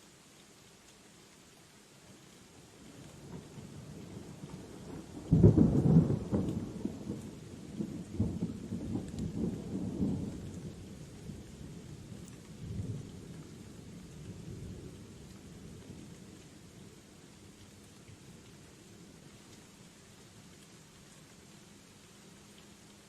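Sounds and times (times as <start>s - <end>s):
steady rain: 0.0s - 23.0s
thunder rumbling: 4.3s - 11.6s.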